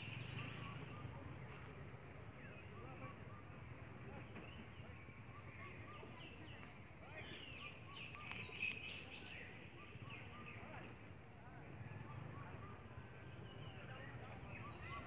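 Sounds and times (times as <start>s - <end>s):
higher bird chirps and calls: 4.4s - 10.9s, 12.0s - 15.0s.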